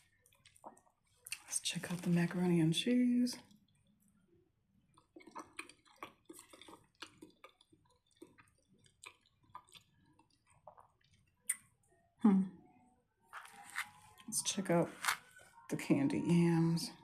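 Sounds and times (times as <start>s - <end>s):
person chewing: 0.0s - 1.4s, 4.9s - 11.8s, 13.4s - 14.3s.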